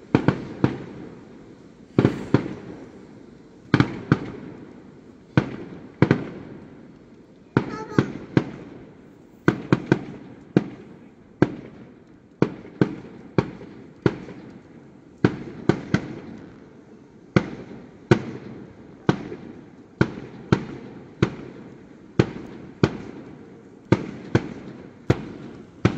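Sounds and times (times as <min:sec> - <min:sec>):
firework shells bursting: 0:24.3 - 0:25.9.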